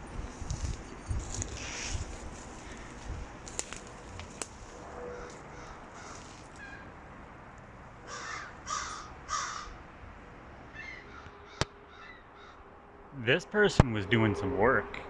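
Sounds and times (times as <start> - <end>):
crow cawing: 5.1 - 6.9, 8.0 - 9.8, 10.8 - 12.7.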